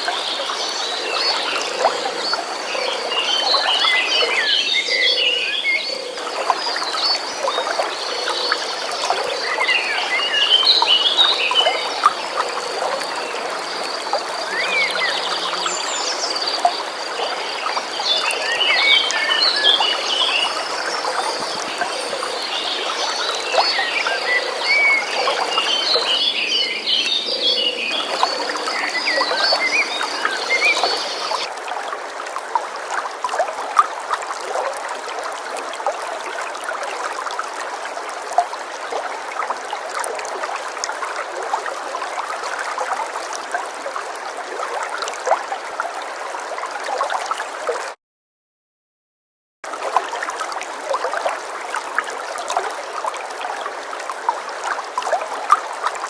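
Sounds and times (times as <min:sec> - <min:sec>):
stream water running: 0:00.0 - 0:48.0, 0:49.6 - 0:56.0
small birds chirping: 0:14.0 - 0:31.5.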